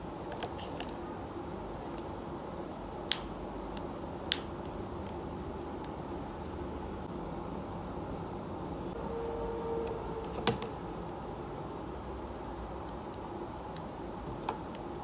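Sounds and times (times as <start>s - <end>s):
steady low hum: 0.0s - 15.0s
sharp clicks: 3.1s - 4.8s.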